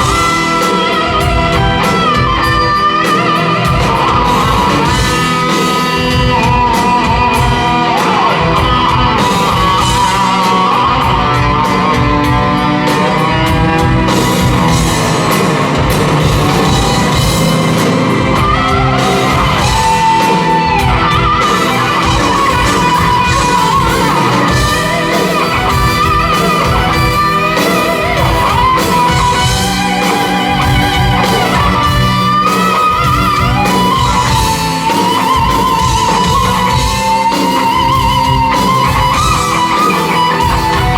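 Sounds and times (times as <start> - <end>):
electric guitar bending notes: 0.0 - 40.9
rock band playing live: 0.0 - 40.9.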